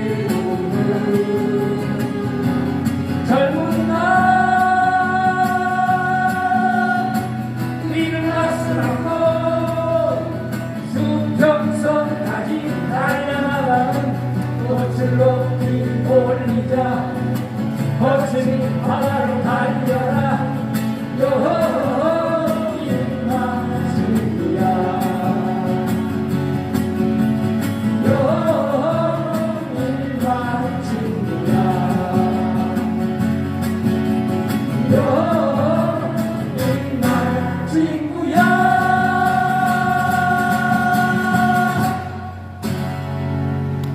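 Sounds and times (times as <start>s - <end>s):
person singing: 0.0s - 17.2s, 34.9s - 42.4s
acoustic guitar: 0.0s - 43.9s.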